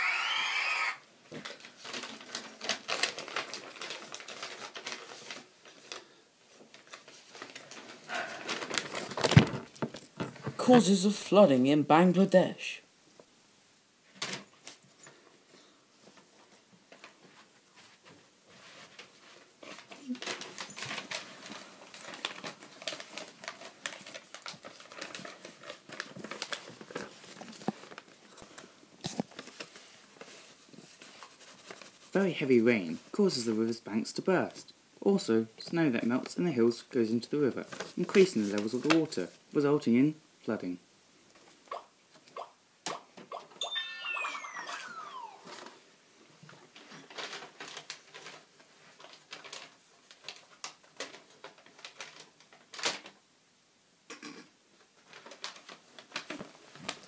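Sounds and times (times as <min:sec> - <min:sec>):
rustling: 0:01.2 - 0:11.2, 0:14.0 - 0:33.6, 0:37.1 - 0:39.5, 0:44.4 - 0:53.2, 0:54.8 - 0:57.0.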